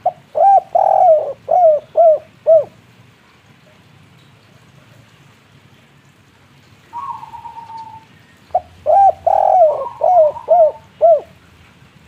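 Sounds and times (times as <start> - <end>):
dove cooing: 0.0 - 2.8, 6.9 - 11.4.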